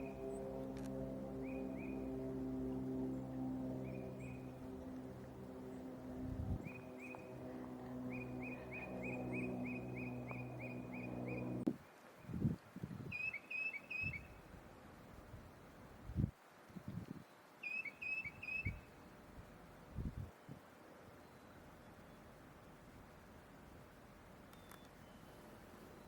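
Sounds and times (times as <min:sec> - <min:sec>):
low steady drone: 0:00.0 - 0:11.7
bird singing whistled notes: 0:13.1 - 0:14.4, 0:17.6 - 0:18.9.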